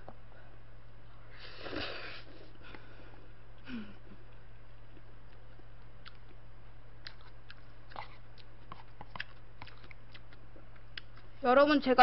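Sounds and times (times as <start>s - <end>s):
low electrical hum: 0.0s - 12.0s
person chewing noodles: 4.8s - 11.4s.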